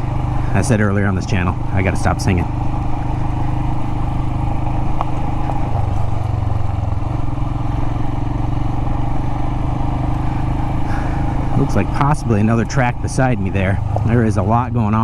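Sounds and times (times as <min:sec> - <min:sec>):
motorcycle engine running: 0:00.0 - 0:15.0
riding noise: 0:00.0 - 0:15.0.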